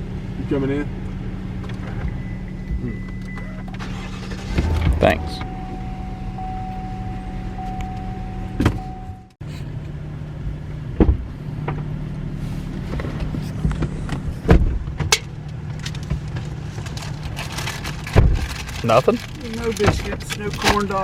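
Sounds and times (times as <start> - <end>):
vehicle cabin hum: 0.0 - 21.0
faint steady tone: 4.7 - 9.4.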